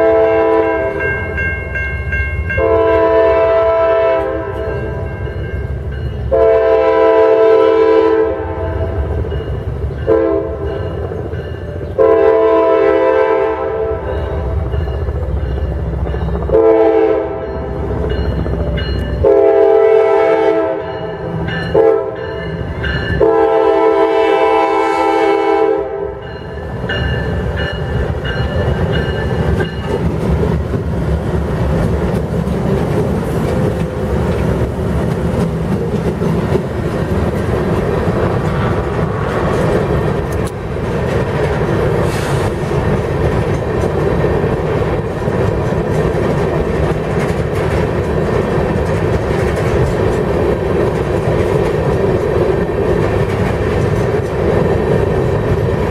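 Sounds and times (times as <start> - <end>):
locomotive air horn: 0.0 - 1.1, 2.5 - 5.0, 6.3 - 9.1, 10.1 - 10.7, 12.0 - 14.1, 16.5 - 17.5, 19.2 - 20.9, 21.7 - 22.2, 23.2 - 26.2
diesel locomotive rumble: 0.0 - 55.9
wheel clatter over rail joints: 26.7 - 55.9.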